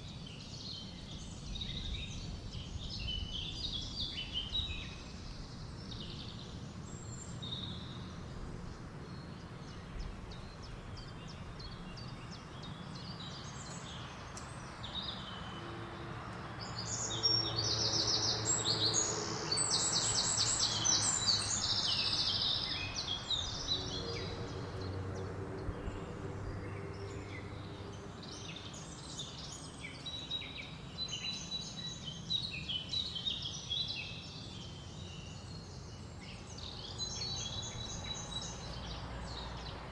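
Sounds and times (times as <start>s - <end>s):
songbirds singing: 0.0s - 39.9s
wind through leaves: 0.0s - 39.9s.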